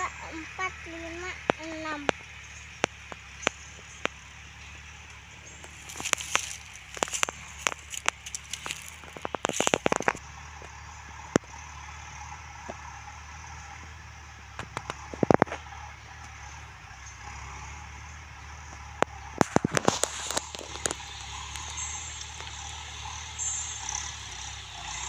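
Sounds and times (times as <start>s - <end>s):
sharp clicks and crackles: 0.0s - 10.7s, 14.6s - 16.4s, 18.7s - 25.0s
outdoor background hiss: 0.0s - 25.0s.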